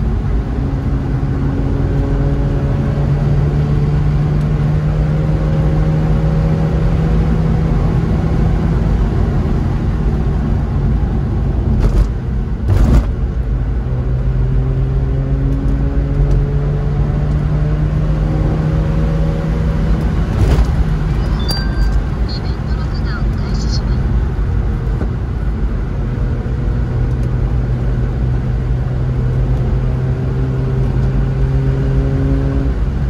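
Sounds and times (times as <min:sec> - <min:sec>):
car engine running: 0:00.0 - 0:33.0
tyre and road noise: 0:07.7 - 0:33.0.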